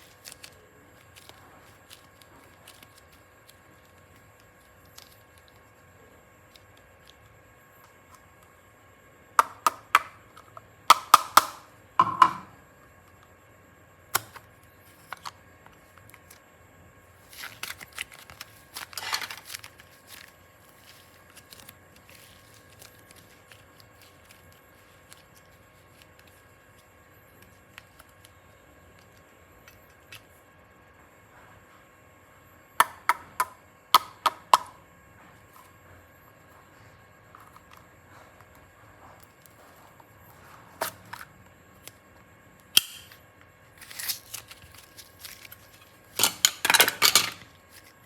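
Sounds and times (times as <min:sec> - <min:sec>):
crackling rustle: 0:00.0 - 0:08.4, 0:17.2 - 0:30.5, 0:43.7 - 0:46.2.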